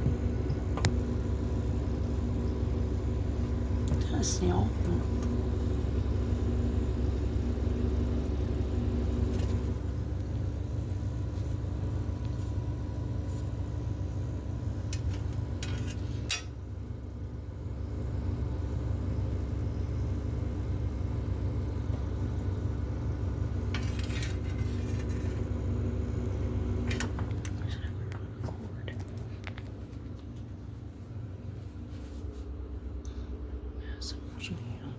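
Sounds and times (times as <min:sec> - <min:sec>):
low mechanical hum: 0:00.0 - 0:34.9.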